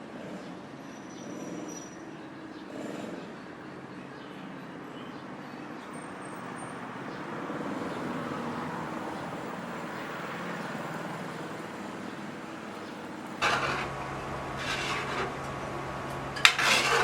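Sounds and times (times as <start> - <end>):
vehicle passing: 7.3 - 17.0.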